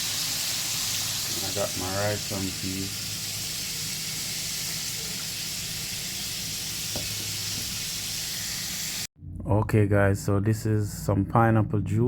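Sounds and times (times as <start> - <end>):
chicken sizzling in hot oil: 0.0 - 9.1.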